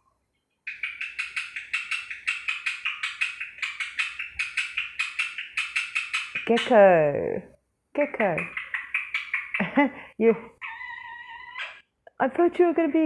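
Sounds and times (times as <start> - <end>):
parrot making chirping clicks: 0.7 - 6.8, 8.2 - 9.7.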